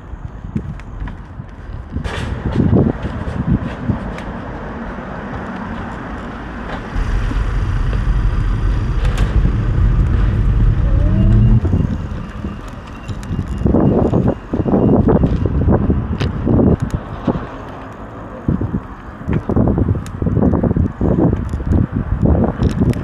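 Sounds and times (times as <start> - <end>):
vehicle passing by: 5.7 - 13.3
engine note rising: 6.9 - 13.9.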